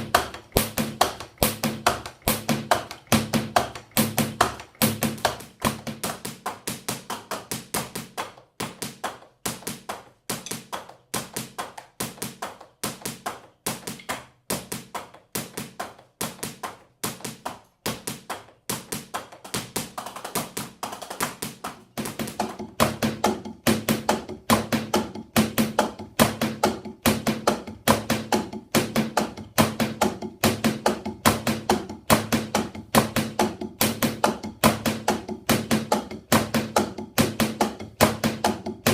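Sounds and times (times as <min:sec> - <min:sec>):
sticks tapping drum pads: 0:00.0 - 0:38.9.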